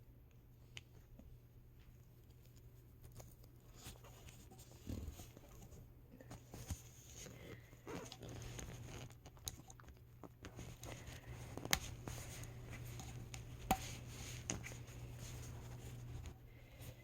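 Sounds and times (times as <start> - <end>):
low steady hum: 0.0 - 17.0
soft rustling of clothes: 10.3 - 17.0.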